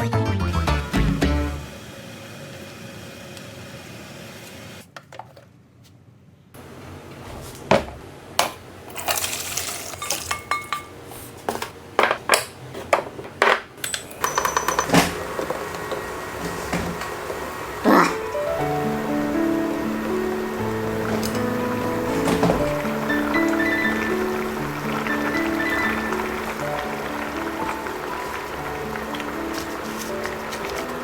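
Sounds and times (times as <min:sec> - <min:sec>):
metal utensils and dishes clinking: 0:08.9 - 0:11.0, 0:12.1 - 0:15.5.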